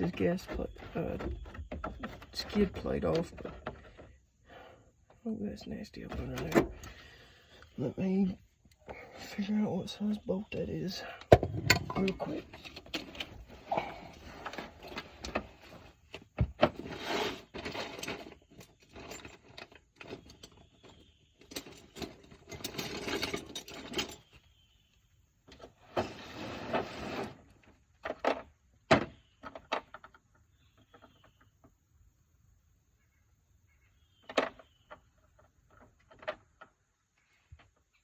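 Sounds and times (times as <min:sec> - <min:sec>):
metal tools clicking and clattering: 0:11.4 - 0:13.4, 0:21.4 - 0:24.3.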